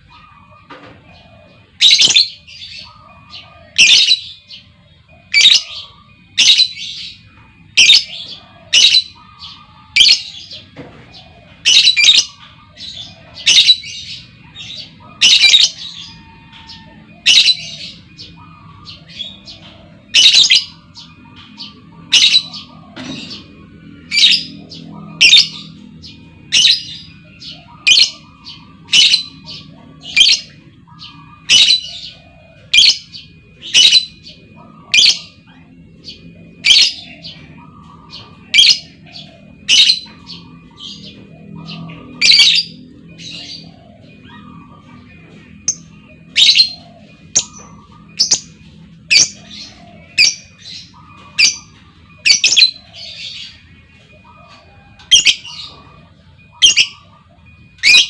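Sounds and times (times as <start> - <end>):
shrill bird squawking: 11.6 - 53.7.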